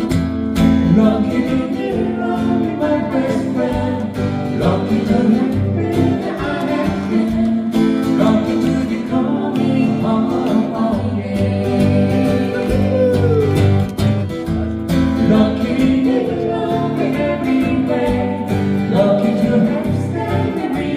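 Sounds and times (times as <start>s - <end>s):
acoustic guitar playing: 0.0s - 20.9s
person singing: 0.8s - 13.9s.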